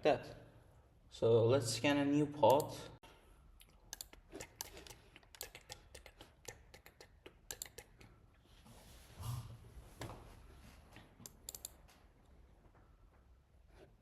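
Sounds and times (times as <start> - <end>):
typing on a keyboard: 4.0 - 8.0.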